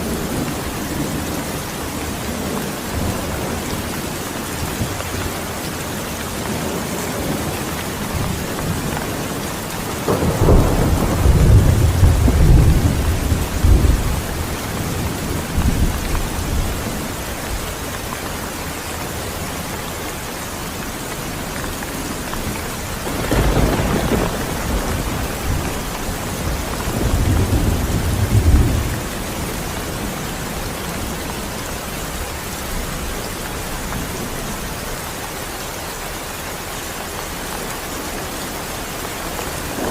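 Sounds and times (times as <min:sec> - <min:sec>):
thunder rumbling: 0:00.0 - 0:17.7, 0:22.1 - 0:34.7
heavy rain: 0:00.0 - 0:39.9.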